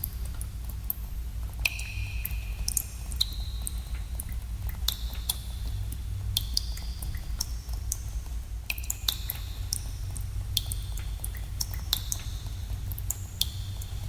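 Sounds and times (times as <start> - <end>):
water drops plinking: 1.6 - 3.8.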